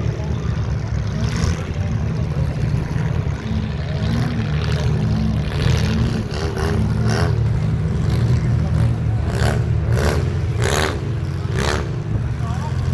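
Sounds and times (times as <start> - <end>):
car engines revving: 0.0 - 12.9
faint voice: 12.2 - 12.9.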